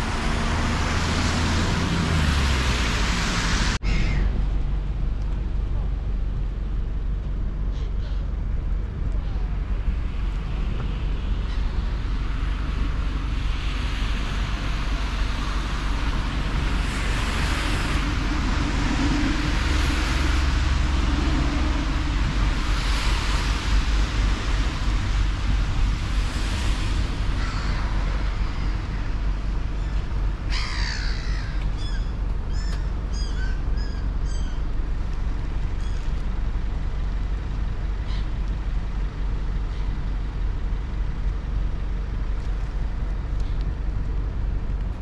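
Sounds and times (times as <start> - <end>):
low outdoor rumble: 0.0 - 45.0
bird calling: 29.8 - 34.7.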